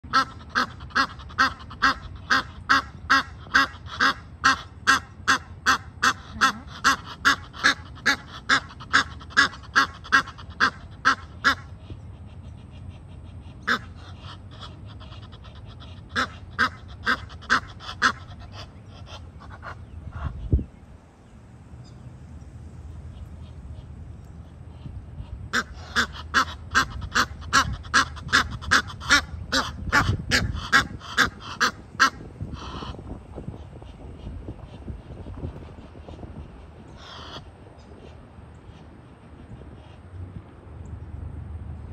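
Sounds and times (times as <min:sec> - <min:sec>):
bird calling: 0:00.1 - 0:20.6, 0:22.9 - 0:33.0, 0:36.9 - 0:38.9.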